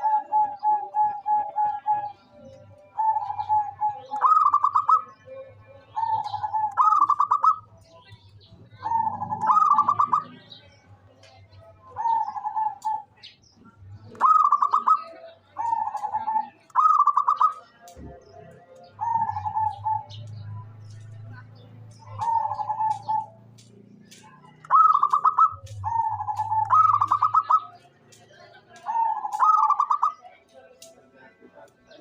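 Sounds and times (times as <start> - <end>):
dove cooing: 0.0 - 7.7, 8.8 - 10.4, 11.8 - 13.2, 14.1 - 17.6, 18.9 - 21.0, 22.0 - 23.4, 24.2 - 27.8, 28.9 - 30.2.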